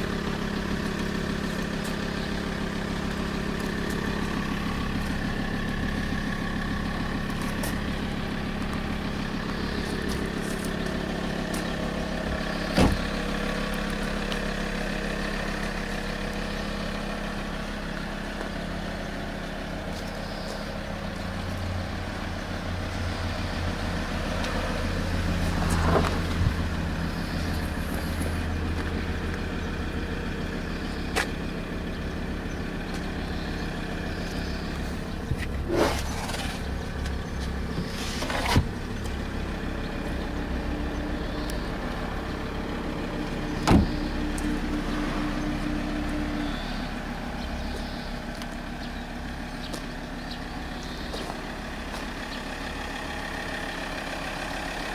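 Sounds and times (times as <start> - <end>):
diesel car engine idling: 0.0 - 54.9.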